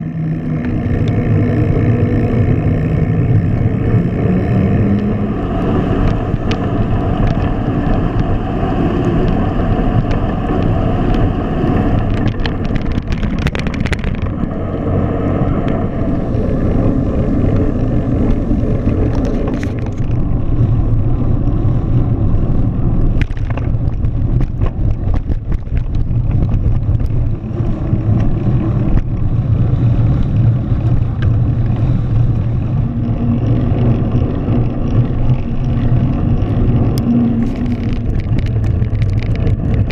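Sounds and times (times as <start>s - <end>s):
bicycle ride rumble: 0.0s - 39.9s
rain: 0.0s - 39.9s
road noise: 0.0s - 39.9s
wind on microphone: 0.0s - 39.9s
clicks and rattles: 9.0s - 14.6s, 17.3s - 20.4s, 23.0s - 29.3s, 30.2s - 39.9s.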